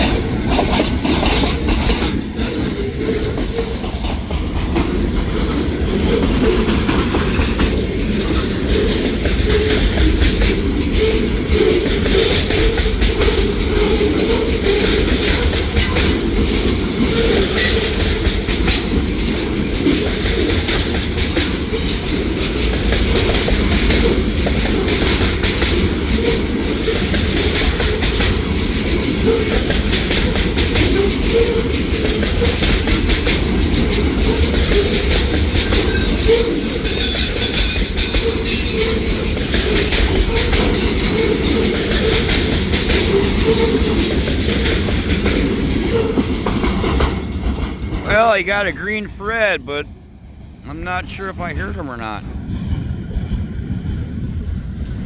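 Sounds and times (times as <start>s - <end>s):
freight train rolling past: 0.0s - 48.8s, 52.2s - 55.0s.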